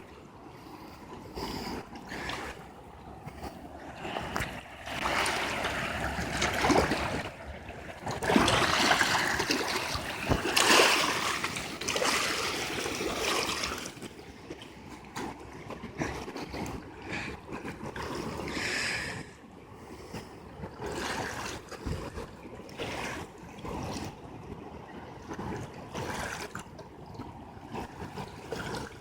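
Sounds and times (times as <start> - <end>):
water rushing over rapids: 4.2 - 14.0.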